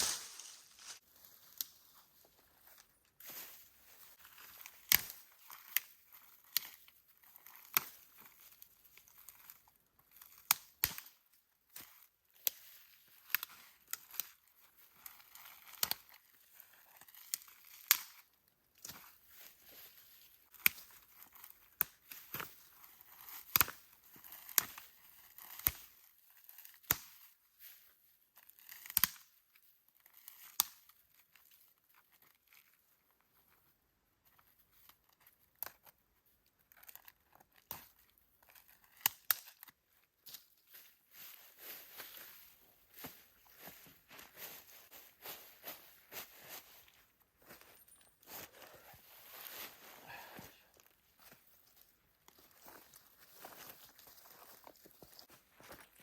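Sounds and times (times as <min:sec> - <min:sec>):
soft rustling and tearing: 0:00.0 - 0:01.7, 0:50.7 - 0:56.0
sharp snaps and crackles: 0:04.4 - 0:14.4, 0:15.0 - 0:19.2, 0:20.4 - 0:27.3, 0:28.4 - 0:29.4, 0:30.1 - 0:31.5, 0:36.6 - 0:40.6.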